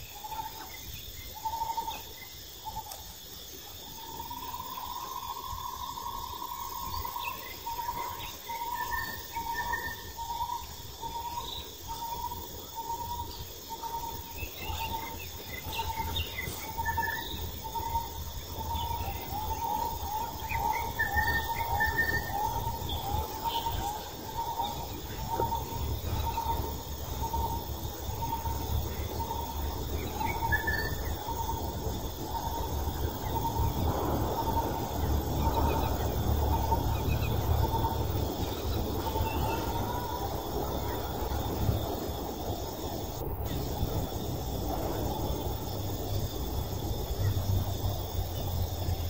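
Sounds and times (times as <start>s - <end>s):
birds chirping: 0.0s - 49.0s
steady low rumble: 12.4s - 49.0s.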